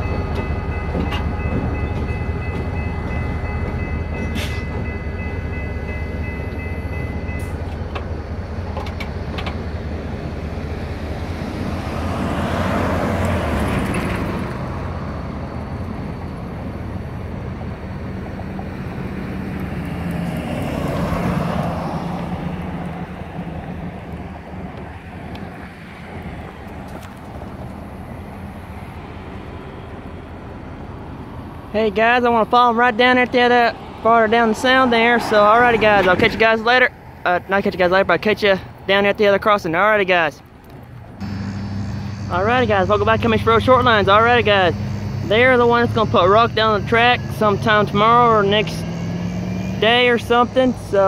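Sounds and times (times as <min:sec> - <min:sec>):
train rolling noise: 0:00.0 - 0:48.0
low engine rumble: 0:12.9 - 0:48.8
locomotive horn: 0:41.2 - 0:50.4.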